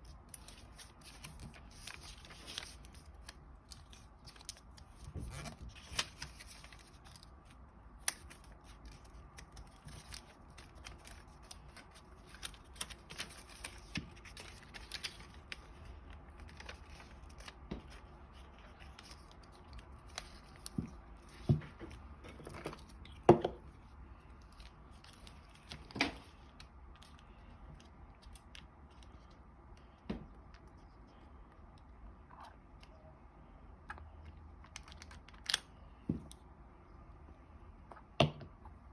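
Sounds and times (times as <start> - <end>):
paper rustling and crackling: 0.0 - 23.1.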